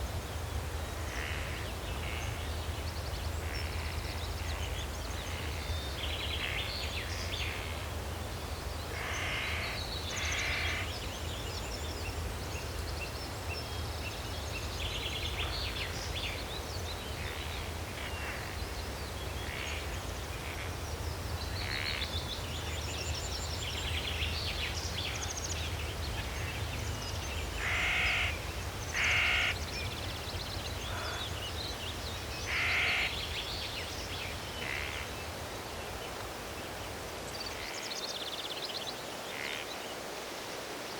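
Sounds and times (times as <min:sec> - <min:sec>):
small birds chirping: 0:08.4 - 0:40.0
crows cawing: 0:09.0 - 0:10.8, 0:27.6 - 0:28.3, 0:29.0 - 0:29.6, 0:30.9 - 0:31.2, 0:32.5 - 0:33.1.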